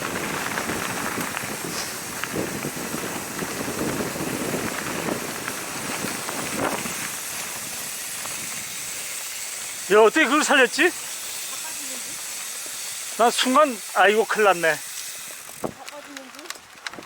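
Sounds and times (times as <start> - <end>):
wind noise on microphone: 0.0 - 9.9, 15.3 - 15.9
bike rattling and knocking: 0.0 - 17.0
tyres crunching over dirt and stones: 0.0 - 17.0.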